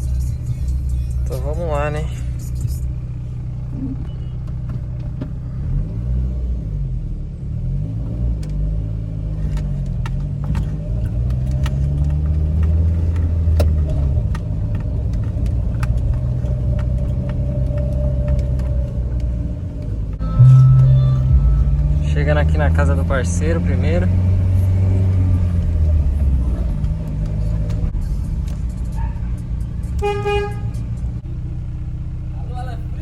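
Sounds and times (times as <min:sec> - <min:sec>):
pickup truck engine revving: 0:20.4 - 0:27.9.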